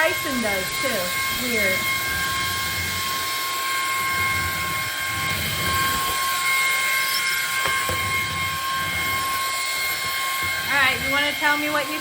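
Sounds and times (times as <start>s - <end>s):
stick vacuum whining: 0.0s - 12.0s.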